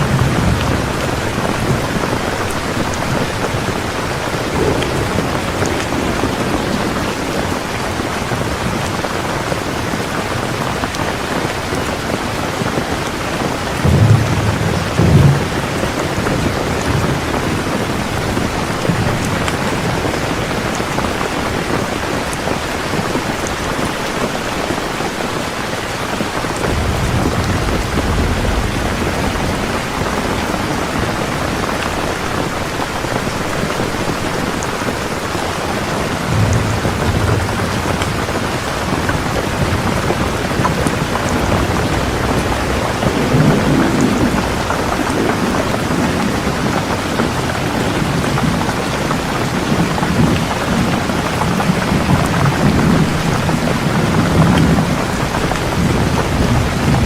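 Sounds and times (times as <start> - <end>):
low rumbles: 0.0 - 10.0, 12.6 - 20.2, 34.9 - 57.0
rain falling: 0.0 - 57.0.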